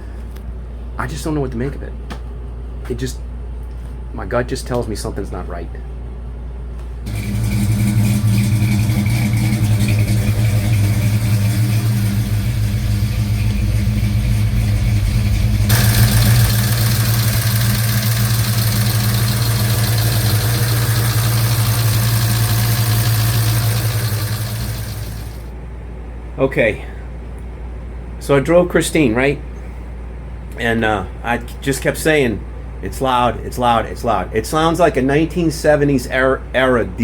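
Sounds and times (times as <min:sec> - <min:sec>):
engine with valve-train clatter: 0:07.1 - 0:25.5.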